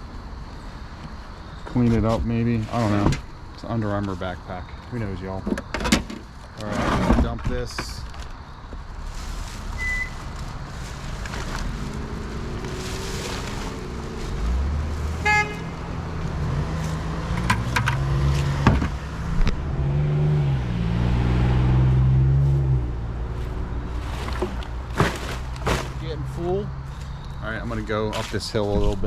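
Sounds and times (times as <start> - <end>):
road traffic passing: 8.0 - 29.0.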